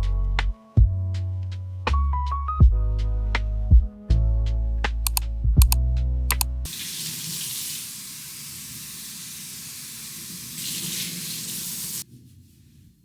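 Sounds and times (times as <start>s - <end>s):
running water rushing: 6.7s - 12.0s.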